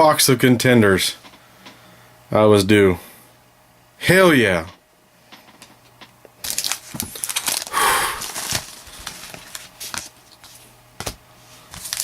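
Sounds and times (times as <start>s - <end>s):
wrapper rustle: 6.4s - 10.6s, 11.7s - 12.0s.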